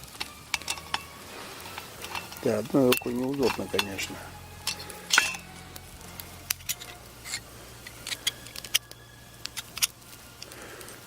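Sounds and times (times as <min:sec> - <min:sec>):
small metal parts clinking: 0:00.1 - 0:05.5, 0:06.5 - 0:08.9.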